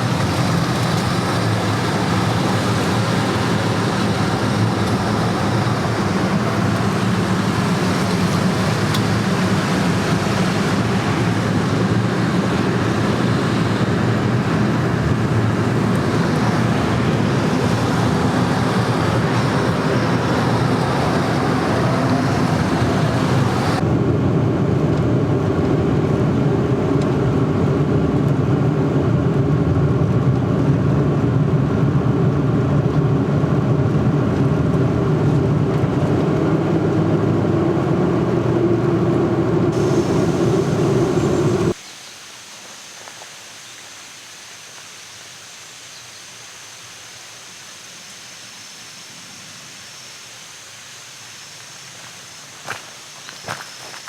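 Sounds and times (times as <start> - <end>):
steady outdoor hiss: 0.0 - 29.1, 39.1 - 54.0
moving vehicle rumble: 0.0 - 41.8.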